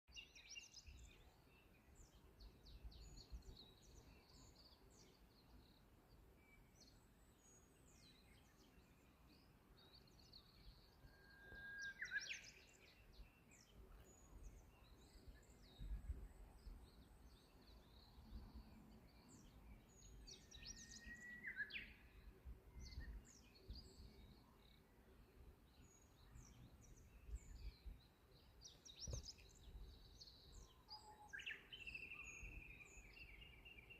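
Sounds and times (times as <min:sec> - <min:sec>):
bush warbler singing: 0:00.1 - 0:33.9
small birds chirping: 0:00.1 - 0:33.9.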